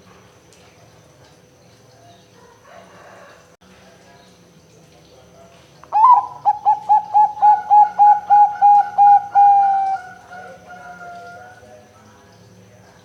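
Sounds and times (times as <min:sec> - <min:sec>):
dove cooing: 0:05.9 - 0:11.6.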